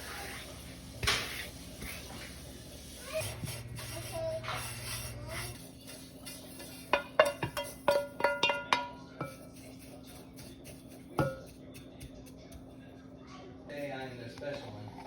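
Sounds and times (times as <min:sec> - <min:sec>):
utensil clinking against dish: 0:05.9 - 0:12.6.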